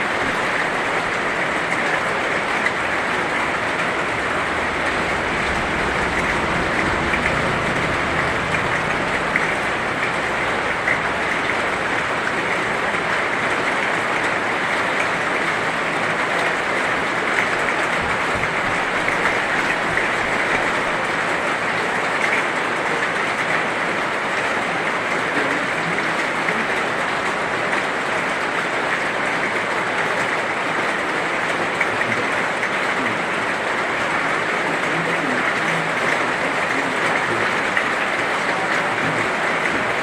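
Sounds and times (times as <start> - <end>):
heavy rain hissing: 0.0 - 40.0
rain drop ticks: 0.1 - 28.7.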